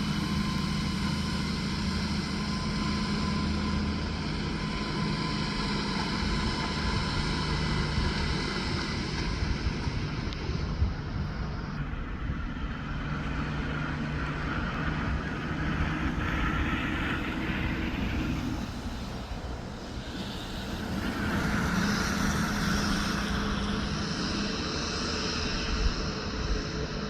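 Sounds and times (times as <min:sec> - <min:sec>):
heavy truck engine running: 0:00.0 - 0:27.0.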